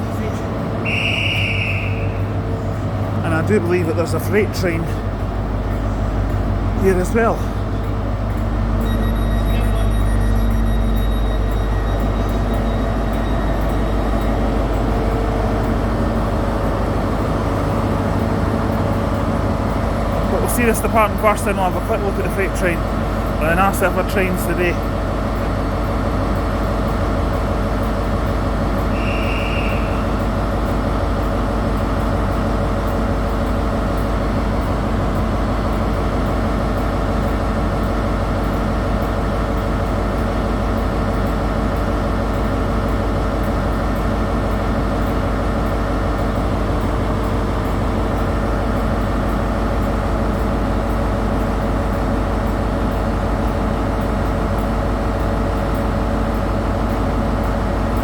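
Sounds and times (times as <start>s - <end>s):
diesel train engine running: 0.0s - 58.0s
short high beep: 8.8s - 13.4s.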